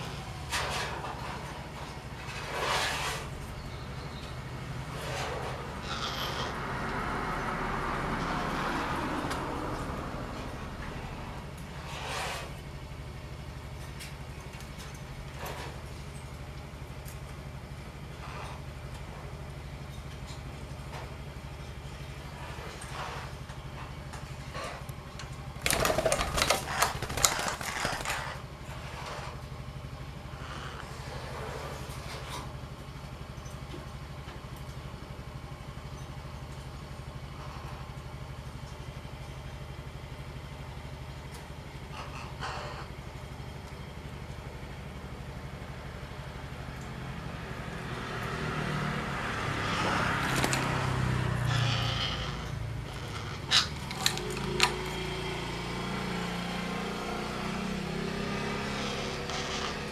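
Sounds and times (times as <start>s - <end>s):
small engine idling: 0.0s - 47.6s, 49.4s - 59.9s
vehicle engine throbbing: 3.3s - 13.8s
harsh clicking noise: 25.6s - 28.3s.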